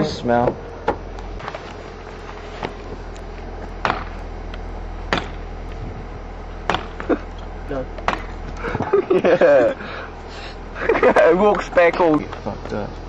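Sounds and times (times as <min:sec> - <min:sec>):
voices: 0:00.0 - 0:00.8, 0:06.8 - 0:13.0
steady low rumble: 0:00.0 - 0:13.0
sharp cracks: 0:06.7 - 0:07.3.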